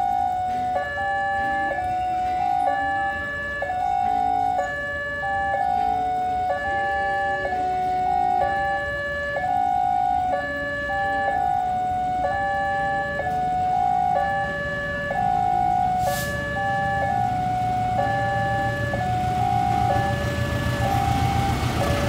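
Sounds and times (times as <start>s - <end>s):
low train rumble: 0.0s - 22.0s
two-tone level-crossing alarm: 0.0s - 22.0s
brief hiss: 16.0s - 16.4s.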